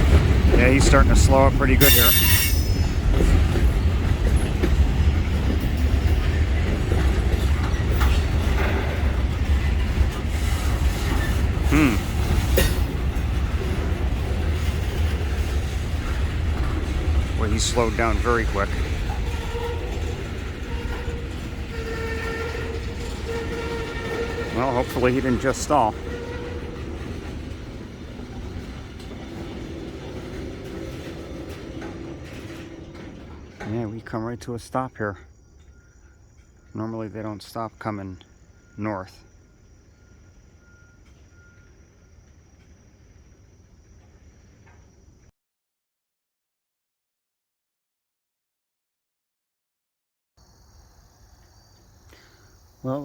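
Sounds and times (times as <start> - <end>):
freight cars rumbling past: 0.0 - 37.7
wheels clicking over rail joints: 0.0 - 38.8, 39.4 - 45.0
brief wheel squeal: 1.8 - 4.5, 10.2 - 13.0, 17.4 - 33.9.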